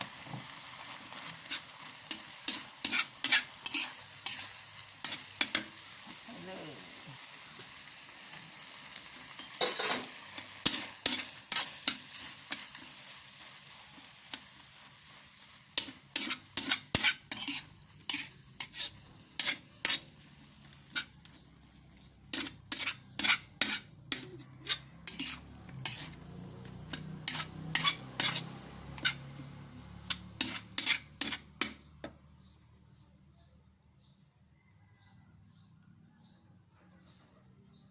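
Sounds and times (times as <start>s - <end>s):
soft sizzle: 0.0s - 33.0s
metal utensil scraping a pan: 0.4s - 5.8s, 9.3s - 14.8s, 15.4s - 31.9s.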